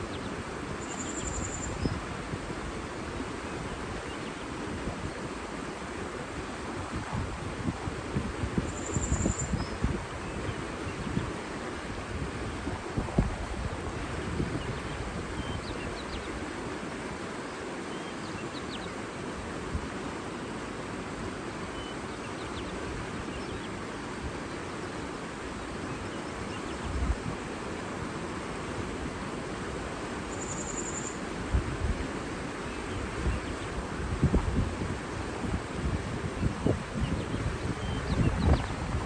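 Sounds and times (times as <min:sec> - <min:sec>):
wind on microphone: 0:00.0 - 0:16.9, 0:26.7 - 0:27.6, 0:31.3 - 0:39.0
rushing water: 0:00.0 - 0:39.0
faint bird chirps: 0:00.8 - 0:02.0, 0:08.7 - 0:09.8, 0:30.3 - 0:31.3.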